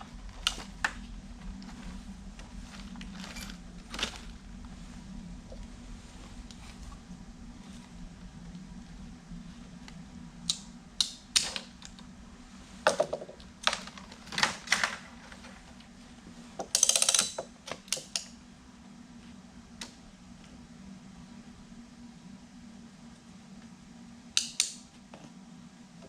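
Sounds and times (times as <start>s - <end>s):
steady low hum: 0.0s - 26.0s
ratchet strap clicking: 16.7s - 18.3s.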